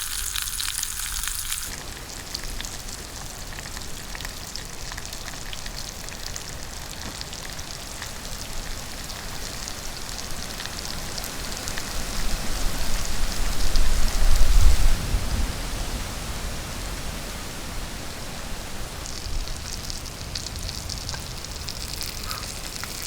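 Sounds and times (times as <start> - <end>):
heavy rain falling: 10.4 - 22.7.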